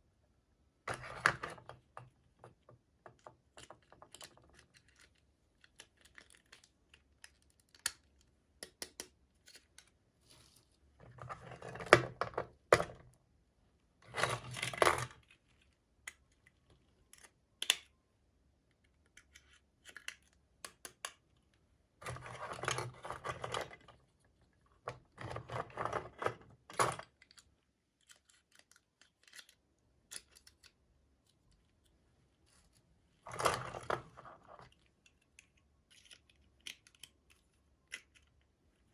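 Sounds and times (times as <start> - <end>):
packaging clicks and taps: 3.6 - 9.9.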